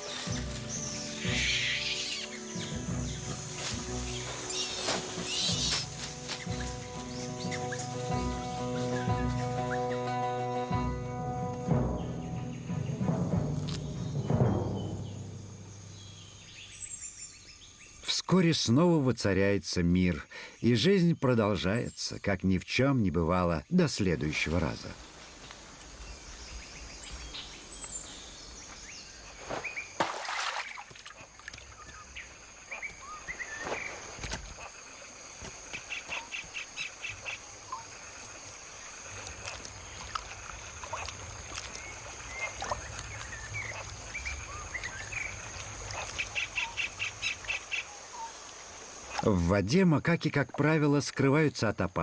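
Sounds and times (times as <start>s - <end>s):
rapid bird trill: 0.0s - 3.3s, 41.8s - 48.4s
birds chirping: 0.0s - 18.2s, 20.0s - 30.0s, 31.2s - 49.4s.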